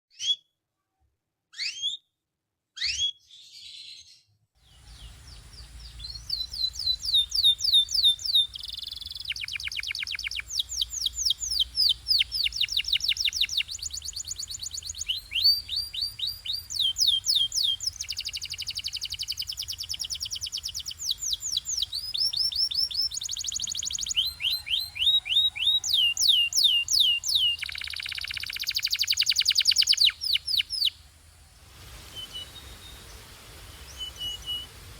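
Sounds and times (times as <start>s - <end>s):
faint low hum: 4.6s - 9.6s
canary singing: 4.7s - 31.0s.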